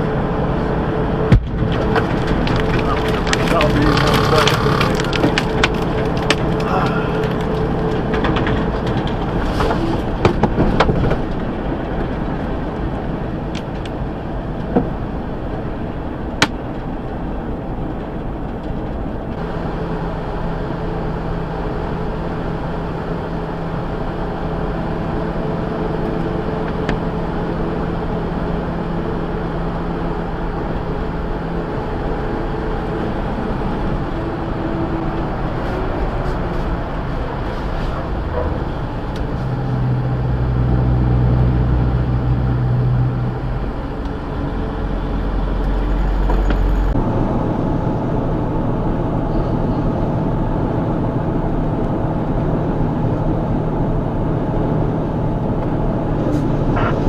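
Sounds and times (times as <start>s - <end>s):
truck engine and road noise: 0.0s - 57.0s
sharp clicks and knocks: 1.3s - 12.1s.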